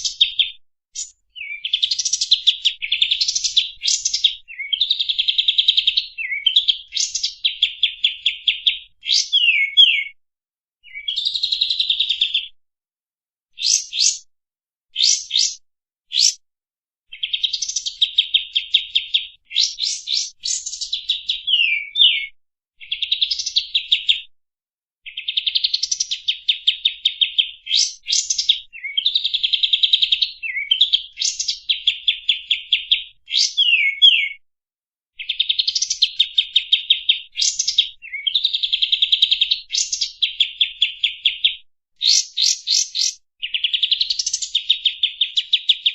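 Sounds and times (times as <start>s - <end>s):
bird singing chattering trills: 13.6s - 14.2s, 15.0s - 15.6s, 16.2s - 16.4s, 19.6s - 20.7s.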